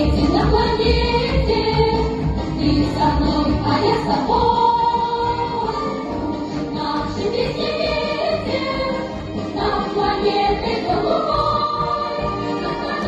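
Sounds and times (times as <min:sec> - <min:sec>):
backing music: 0:00.0 - 0:13.0
children singing: 0:00.0 - 0:13.0.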